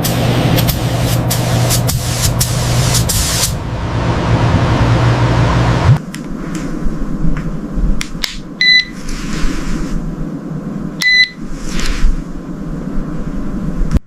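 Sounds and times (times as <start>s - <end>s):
steady low rumble: 0.0s - 8.7s, 9.5s - 14.0s
short electronic beeps: 8.6s - 8.9s, 11.0s - 11.4s.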